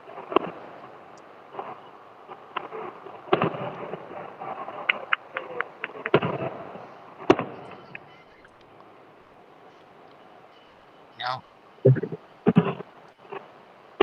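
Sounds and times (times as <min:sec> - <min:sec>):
fireworks cracking: 0:00.0 - 0:08.1.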